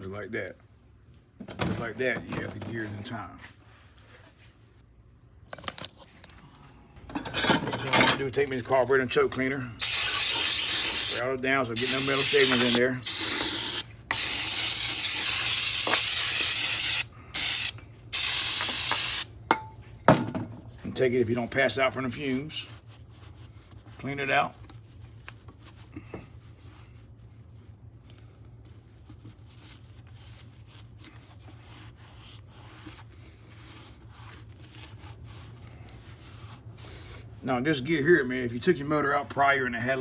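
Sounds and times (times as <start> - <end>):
aerosol spray hissing: 9.8 - 11.2, 11.8 - 19.3
rubbing and scrubbing strokes: 11.8 - 19.2.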